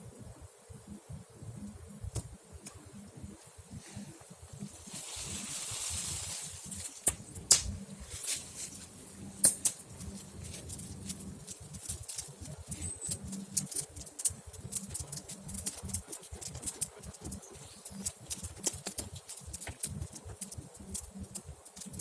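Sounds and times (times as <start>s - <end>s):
burning wood popping: 1.7s - 22.0s
campfire crackling: 1.7s - 22.0s.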